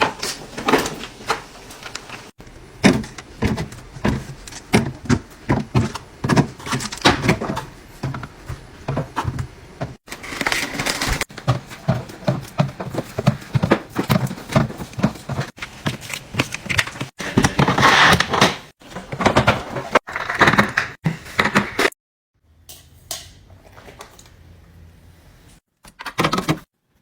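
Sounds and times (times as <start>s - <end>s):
containers knocking and clattering: 0.0s - 21.9s.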